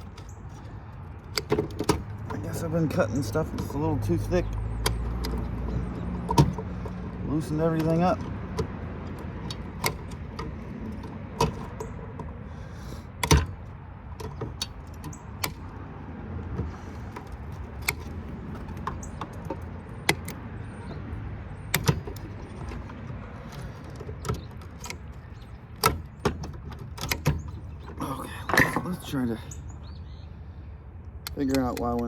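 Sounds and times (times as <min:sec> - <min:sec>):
snips clicking and clacking: 0:00.0 - 0:28.0.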